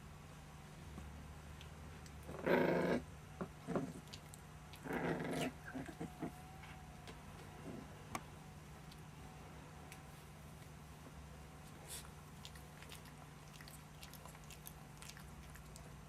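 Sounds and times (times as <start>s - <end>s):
puppies growling: 2.2s - 6.4s.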